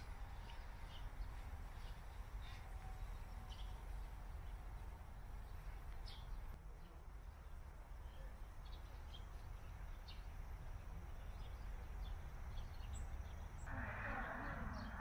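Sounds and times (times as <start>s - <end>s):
steady low rumble: 9.0s - 15.0s.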